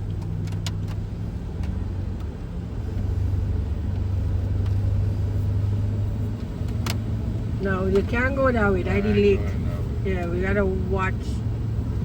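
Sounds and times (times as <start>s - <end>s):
car engine and road hum: 0.0s - 12.0s.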